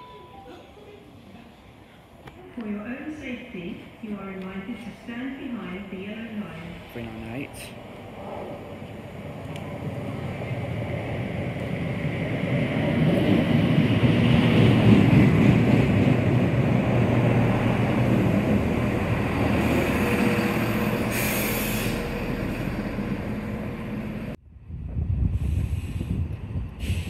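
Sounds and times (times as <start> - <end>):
diesel train rumbling past: 3.2 - 27.0
high brake squeal: 21.0 - 22.1.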